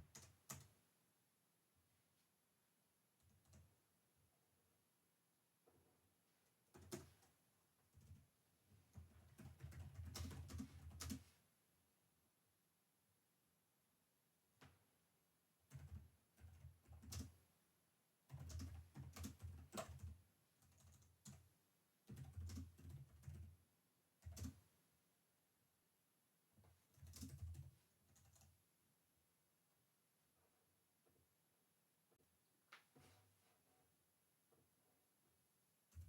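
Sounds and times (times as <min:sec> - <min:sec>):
keyboard typing: 0:00.0 - 0:00.8, 0:06.7 - 0:07.3, 0:08.9 - 0:11.3, 0:15.7 - 0:17.4, 0:18.3 - 0:21.4, 0:22.1 - 0:23.5, 0:24.2 - 0:24.7, 0:26.9 - 0:28.6.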